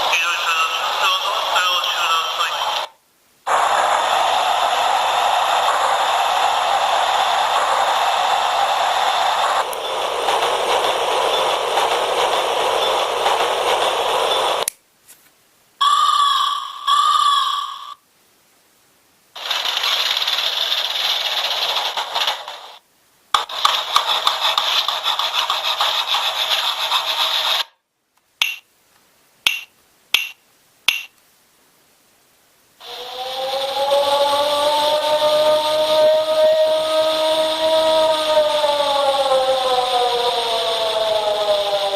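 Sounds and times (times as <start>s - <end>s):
steady rushing noise: 3.5s - 14.6s
pitched electronic tone: 28.4s - 28.6s
wooden clappers clacking: 28.4s - 28.6s, 29.5s - 31.1s
siren rising in pitch: 32.8s - 41.9s.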